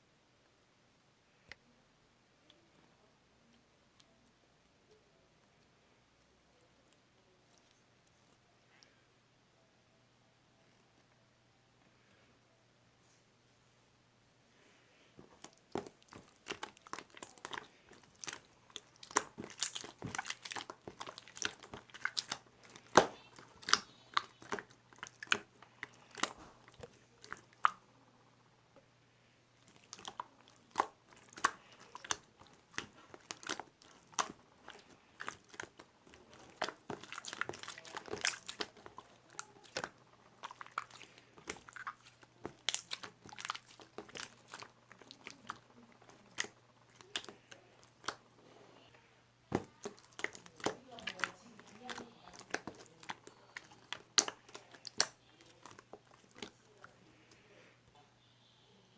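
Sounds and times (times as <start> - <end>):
crunchy chewing: 15.2 - 27.8, 29.6 - 48.7, 49.5 - 57.4.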